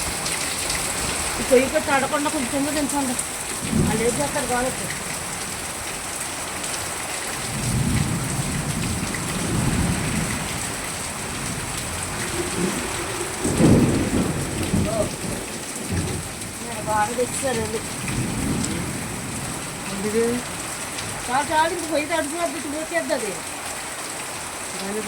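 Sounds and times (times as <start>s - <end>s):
heavy rain pouring: 0.0s - 25.0s
low rumbling: 7.5s - 20.6s.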